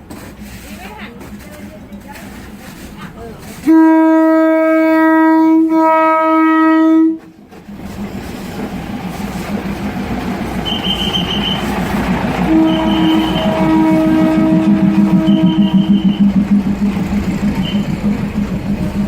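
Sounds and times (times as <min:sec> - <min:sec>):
train rumbling along track: 0:00.0 - 0:19.0
train horn blast: 0:03.6 - 0:07.3, 0:10.5 - 0:18.0
brief high-pitched tone: 0:12.6 - 0:16.4.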